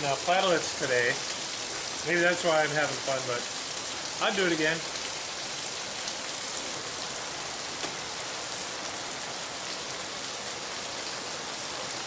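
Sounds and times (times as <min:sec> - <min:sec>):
rain falling steadily: 0:00.0 - 0:12.0.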